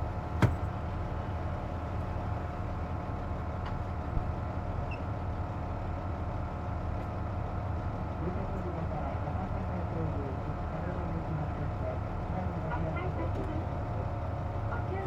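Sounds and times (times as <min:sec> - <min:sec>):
bus diesel engine rumble: 0:00.0 - 0:15.0.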